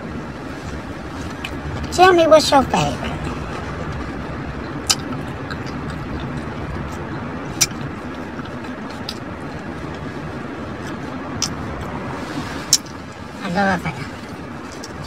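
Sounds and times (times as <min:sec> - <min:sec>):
low background hum: 0:00.0 - 0:15.0
mouth clicks while eating: 0:04.6 - 0:10.0.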